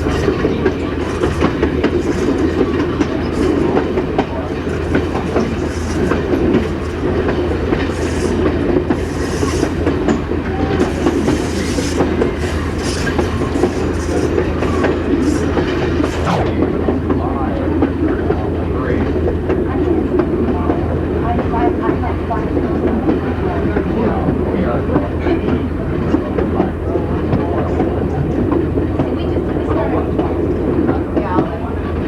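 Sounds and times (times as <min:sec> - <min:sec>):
wheels clicking over rail joints: 0:00.0 - 0:16.2
railcar rumbling on track: 0:00.0 - 0:32.0.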